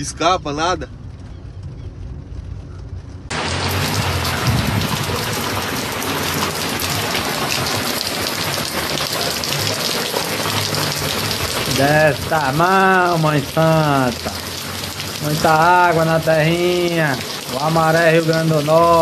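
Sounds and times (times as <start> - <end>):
low rumble: 0.0 - 9.6
heavy rain pouring: 3.3 - 19.0.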